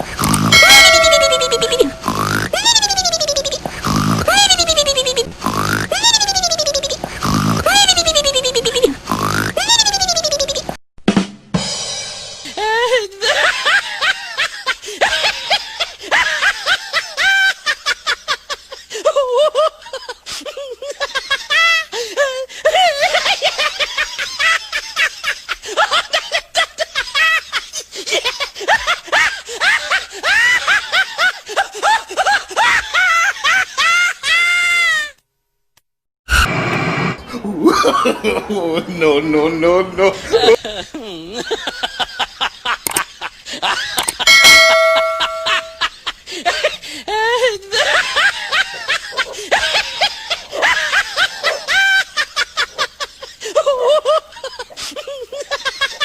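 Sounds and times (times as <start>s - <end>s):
person laughing: 0.3s - 9.0s, 37.3s - 39.0s, 40.0s - 48.4s
high-pitched giggling laughter: 0.5s - 10.8s, 12.5s - 35.1s, 40.1s - 56.0s.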